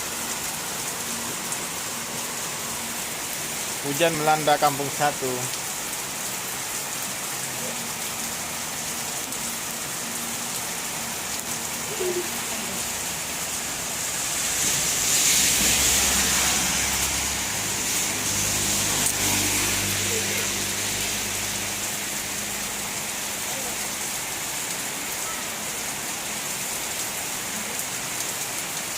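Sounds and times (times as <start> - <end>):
heavy rain pouring: 0.0 - 28.9.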